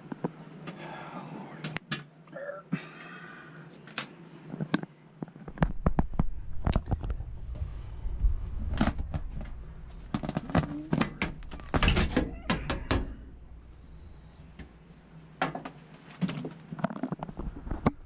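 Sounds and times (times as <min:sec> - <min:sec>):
low rumble: 0:06.2 - 0:12.2.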